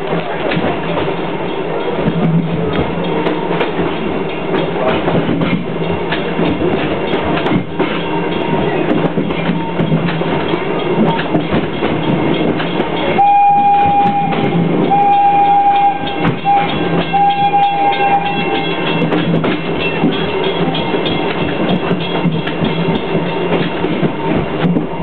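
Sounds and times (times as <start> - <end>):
carriages rumbling over track: 0.0 - 25.0
steam train whistle blasts: 13.2 - 18.8.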